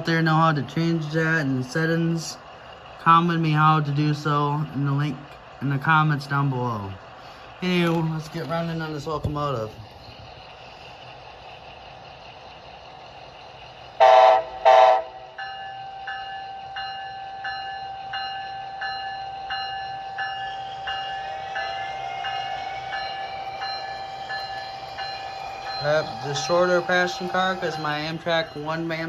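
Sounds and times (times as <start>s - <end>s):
model train horn blasts: 14.0s - 15.3s
locomotive bell ringing: 14.0s - 29.0s
steady tone: 18.4s - 29.0s.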